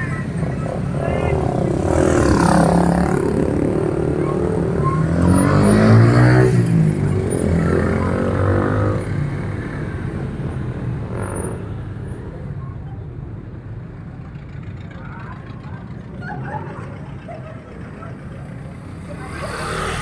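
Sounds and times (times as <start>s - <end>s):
motorcycle revving: 0.0s - 12.0s, 17.8s - 20.0s
motorcycles riding past: 0.0s - 12.4s, 13.9s - 20.0s.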